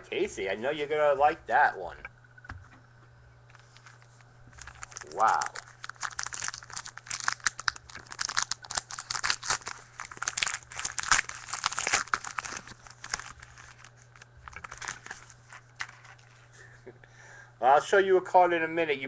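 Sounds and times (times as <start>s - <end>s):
wrapper crinkling and tearing: 3.6s - 16.4s.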